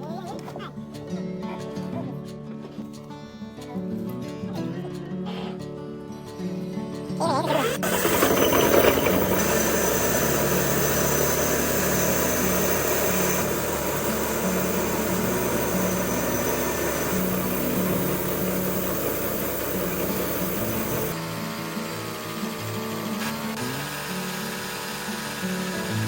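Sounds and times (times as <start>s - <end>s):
large machine rushing and humming: 7.7s - 26.0s.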